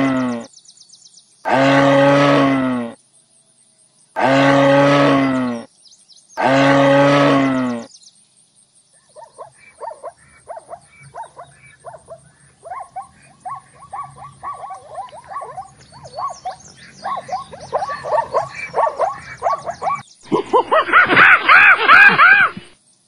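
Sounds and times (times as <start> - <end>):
zebra barking yelps: 9.1 - 22.7.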